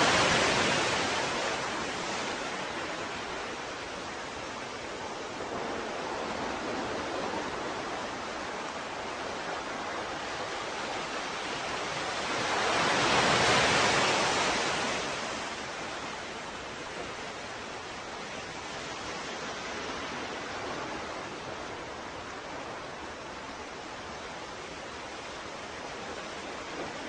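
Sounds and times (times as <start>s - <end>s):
wave breaking: 0.0s - 3.9s
ocean surf washing: 0.0s - 27.0s.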